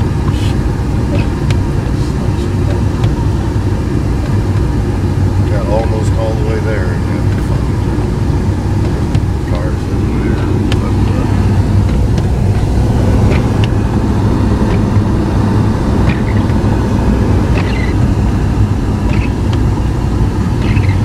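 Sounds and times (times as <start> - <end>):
car engine rumble: 0.0 - 21.0
road noise: 0.0 - 21.0.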